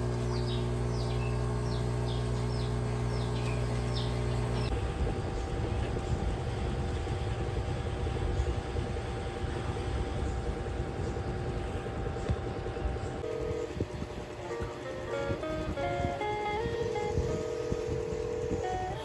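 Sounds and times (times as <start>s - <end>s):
engine hum: 0.0s - 19.0s
bird chirps: 0.3s - 4.7s.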